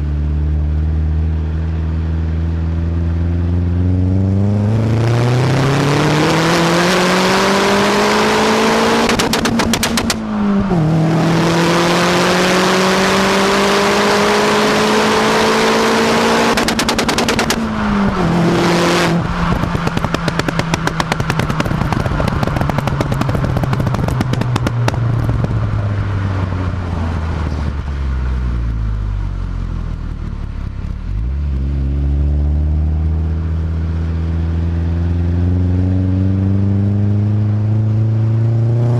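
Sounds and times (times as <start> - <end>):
car engine revving: 0.0 - 38.9
exhaust pops and bangs: 9.0 - 10.2, 16.5 - 17.7, 19.4 - 25.8.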